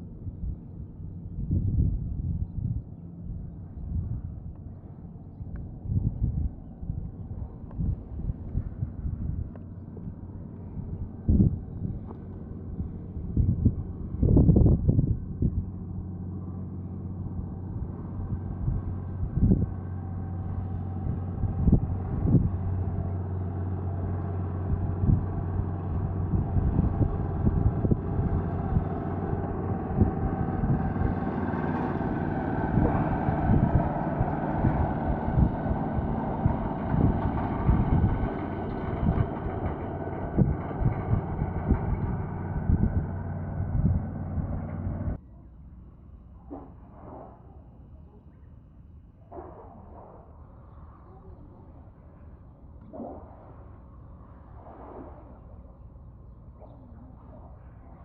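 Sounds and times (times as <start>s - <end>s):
tractor engine running: 15.2s - 45.2s
knocks and rattles: 23.8s - 45.2s.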